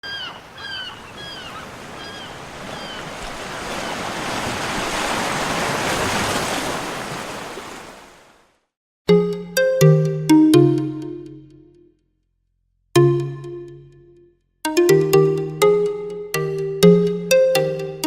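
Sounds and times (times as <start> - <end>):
bird short falling calls: 0.0 - 4.1
sea surf wave: 0.0 - 8.4.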